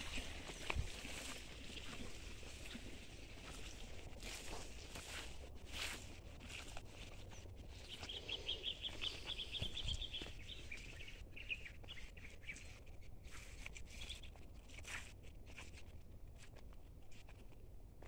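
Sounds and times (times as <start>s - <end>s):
songbird chirping: 7.7s - 12.8s.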